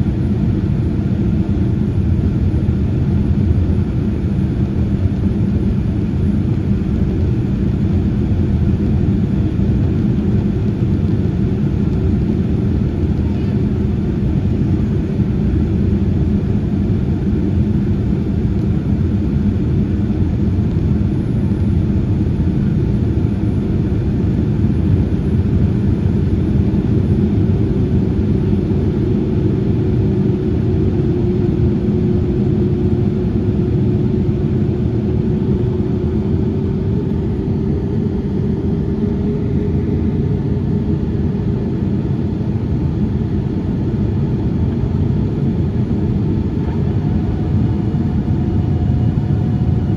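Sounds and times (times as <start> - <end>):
jet engines rumbling: 0.0 - 49.9.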